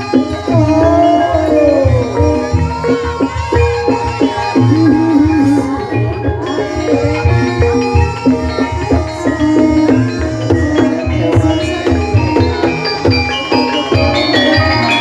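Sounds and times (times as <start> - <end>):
gamelan pitched notes: 0.0 - 15.0
hand drum strokes: 0.0 - 15.0.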